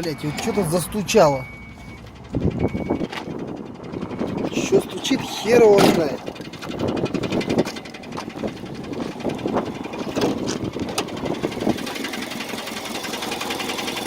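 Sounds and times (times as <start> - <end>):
car engine running with knock: 2.0 - 4.6, 5.8 - 14.0.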